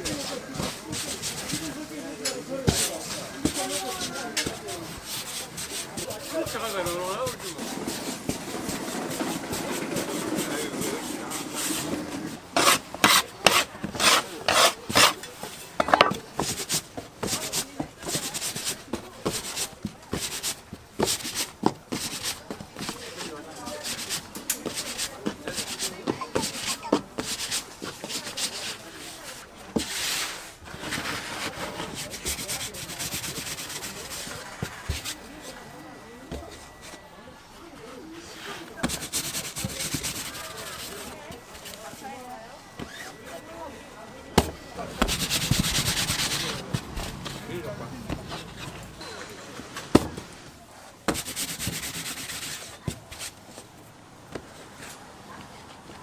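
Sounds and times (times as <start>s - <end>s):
hands rubbing dough on board: 0.0s - 37.0s, 38.2s - 42.2s, 44.4s - 49.0s, 51.1s - 53.6s
thump: 44.4s - 45.7s.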